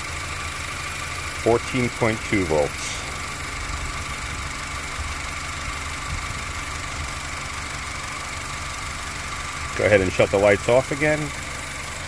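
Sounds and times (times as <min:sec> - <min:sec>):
car engine idling: 0:00.0 - 0:12.0
steady high tone: 0:01.4 - 0:05.2.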